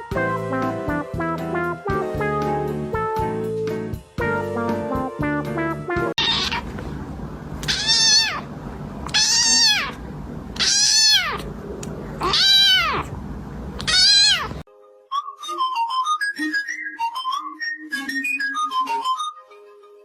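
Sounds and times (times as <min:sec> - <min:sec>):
cat meowing: 0:06.2 - 0:06.8, 0:07.6 - 0:10.0, 0:10.6 - 0:11.5, 0:12.2 - 0:13.1, 0:13.8 - 0:14.6.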